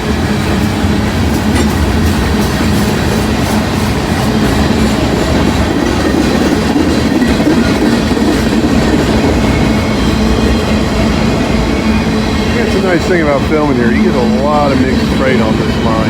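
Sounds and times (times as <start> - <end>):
freight train cars rolling past: 0.0 - 16.0
wheels clattering on rails: 0.0 - 16.0.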